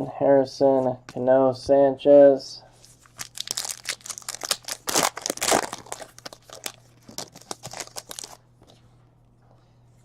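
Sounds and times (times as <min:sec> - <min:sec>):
wrapper crinkling and tearing: 0:02.9 - 0:08.4.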